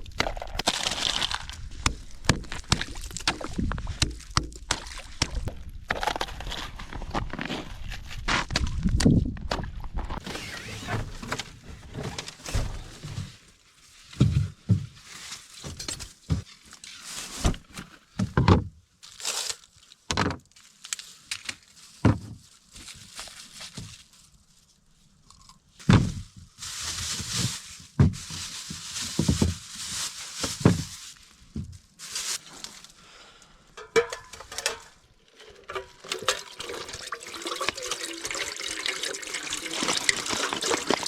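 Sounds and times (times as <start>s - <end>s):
rustling and crinkling: 0.0s - 18.4s, 19.0s - 41.0s
objects thudding and knocking: 9.5s - 13.4s, 27.9s - 29.6s, 33.8s - 38.0s, 38.8s - 41.0s.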